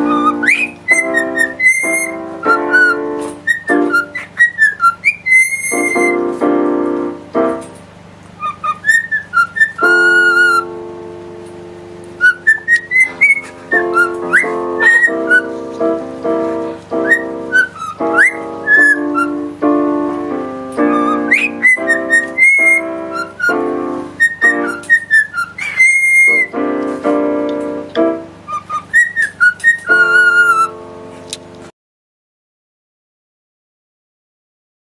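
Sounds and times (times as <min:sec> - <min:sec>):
parrot whistling a tune: 0:00.0 - 0:06.3, 0:08.4 - 0:10.8, 0:12.2 - 0:16.0, 0:16.9 - 0:19.8, 0:20.7 - 0:26.6, 0:27.9 - 0:30.8
piano chords: 0:00.0 - 0:31.7.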